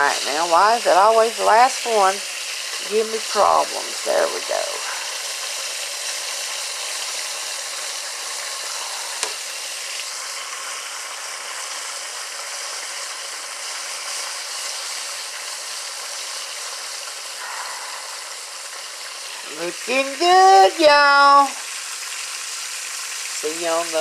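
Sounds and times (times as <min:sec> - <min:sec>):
food frying in hot oil: 0:00.0 - 0:24.0.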